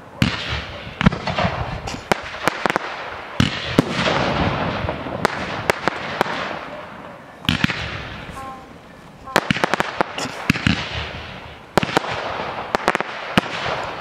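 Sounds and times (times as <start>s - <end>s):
fireworks bangs: 0.0s - 14.0s
fireworks hissing: 0.0s - 14.0s.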